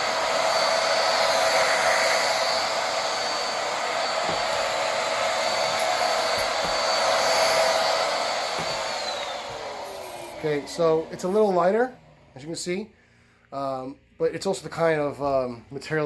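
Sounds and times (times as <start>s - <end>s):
vacuum cleaner motor whine: 0.0s - 12.7s.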